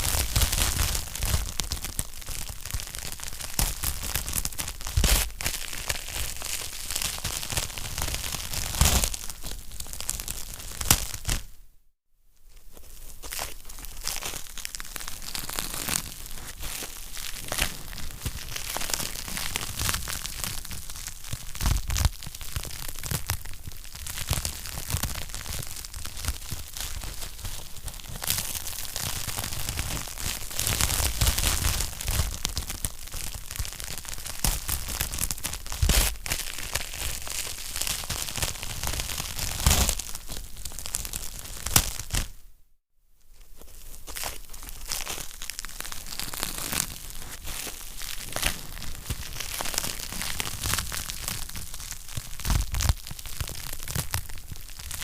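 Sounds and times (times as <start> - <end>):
wood fire crackling and popping: 45.0 - 55.0.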